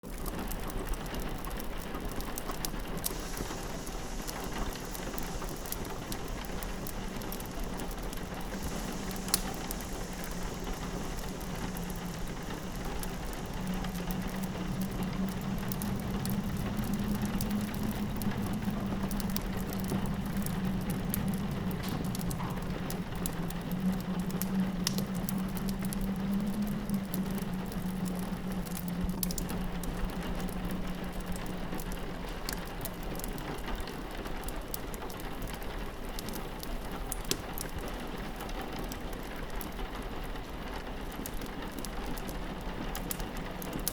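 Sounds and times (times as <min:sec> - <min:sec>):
rain pattering on a window: 0:00.0 - 0:43.9
wood fire popping and crackling: 0:00.0 - 0:43.9
low wind moan: 0:01.7 - 0:36.1.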